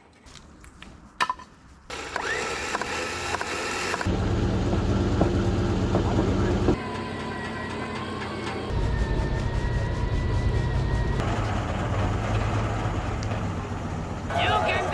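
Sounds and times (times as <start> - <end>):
low engine drone: 4.0 - 14.9
noisy rumble: 4.1 - 14.9.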